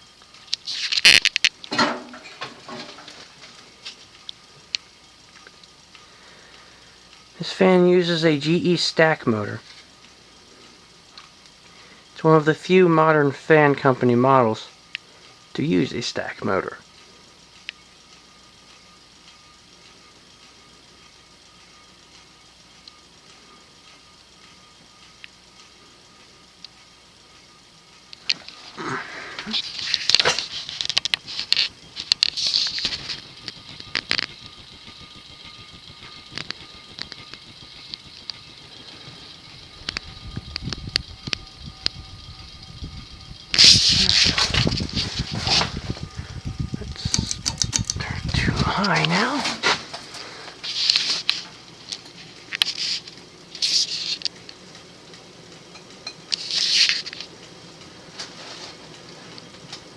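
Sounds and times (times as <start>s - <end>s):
ceiling fan running: 0.0s - 59.9s
strings ticking against fan: 31.0s - 49.3s.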